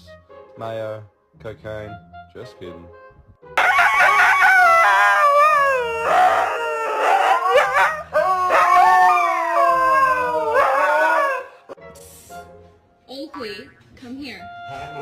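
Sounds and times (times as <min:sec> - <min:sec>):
dog howling: 0:04.0 - 0:11.8.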